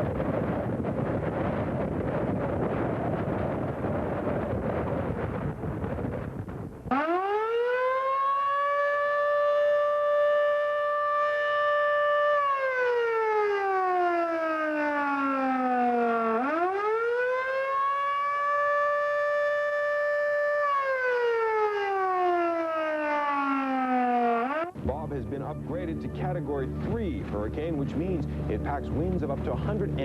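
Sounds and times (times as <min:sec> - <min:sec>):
civil defense siren wailing: 0:06.8 - 0:24.8.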